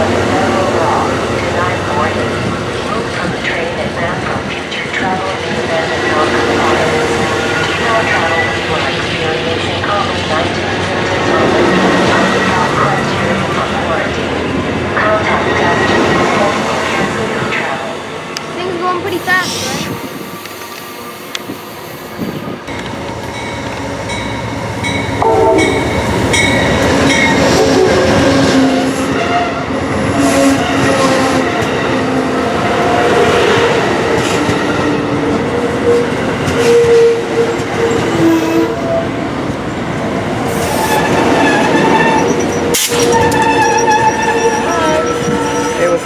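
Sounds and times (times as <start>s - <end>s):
train clattering over rails: 0.0s - 46.0s
train wheels squealing: 40.5s - 46.0s.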